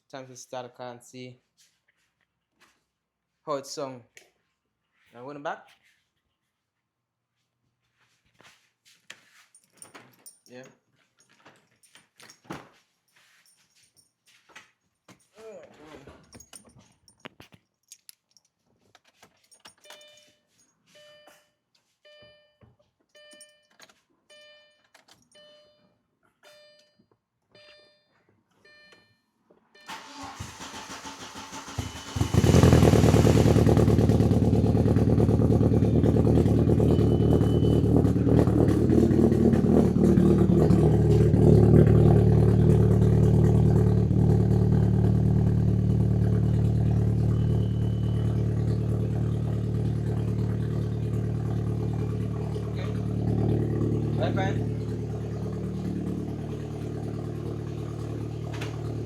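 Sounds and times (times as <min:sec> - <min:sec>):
dashboard warning chime: 0:19.9 - 0:20.4, 0:21.0 - 0:21.5, 0:22.1 - 0:22.6, 0:23.2 - 0:27.0, 0:27.6 - 0:30.0, 0:35.6 - 0:42.2, 0:46.3 - 0:59.0
loud car engine idling: 0:32.2 - 0:59.0.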